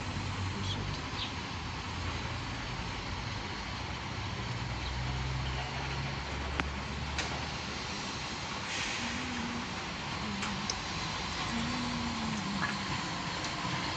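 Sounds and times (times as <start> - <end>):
diesel locomotive engine humming: 0.0 - 13.9
steady background hiss: 7.5 - 13.9.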